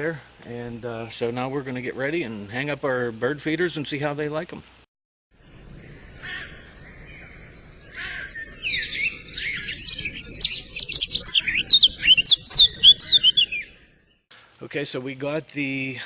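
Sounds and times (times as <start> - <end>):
songbirds chirping and singing: 5.4 - 14.2.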